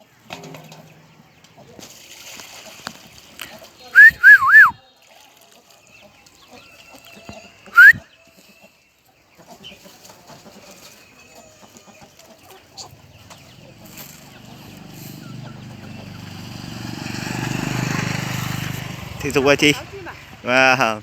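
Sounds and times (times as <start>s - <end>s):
songbird whistling: 3.9s - 4.8s, 7.6s - 8.2s.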